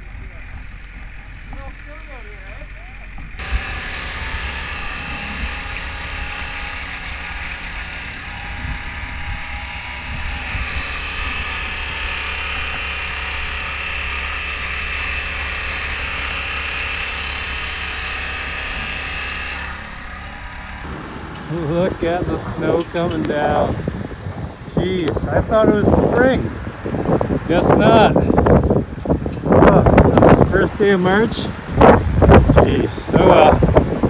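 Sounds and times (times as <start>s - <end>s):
pressure washer motor drone: 0.0s - 24.2s.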